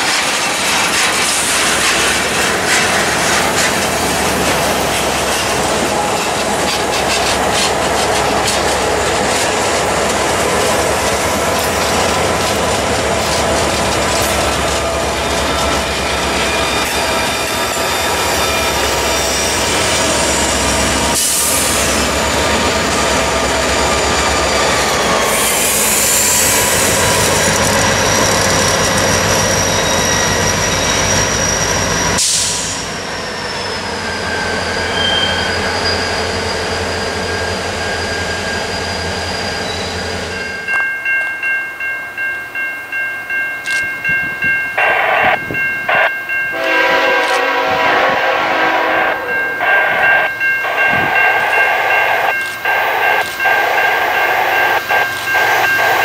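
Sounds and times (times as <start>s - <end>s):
diesel locomotives passing: 0.0s - 56.0s
crossing bell ringing: 2.1s - 32.2s, 37.0s - 56.0s
high wheel squeal: 13.9s - 40.5s
train horn blasts: 46.5s - 49.8s.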